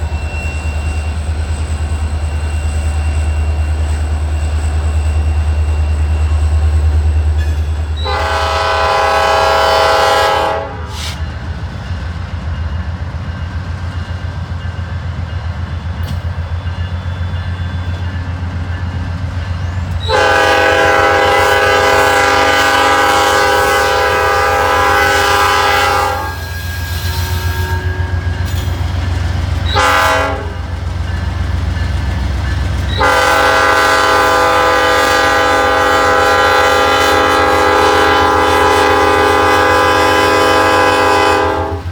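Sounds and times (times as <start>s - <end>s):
locomotive air horn blasts: 8.0s - 11.2s, 20.0s - 28.5s, 29.6s - 30.7s, 32.9s - 41.9s.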